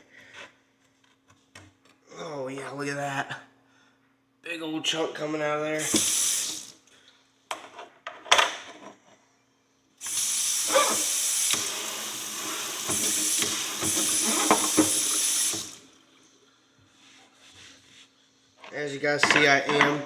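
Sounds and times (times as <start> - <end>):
clunks in running water: 5.8 - 6.7, 10.0 - 16.0
kitchen tap running: 5.8 - 6.8, 10.0 - 16.2.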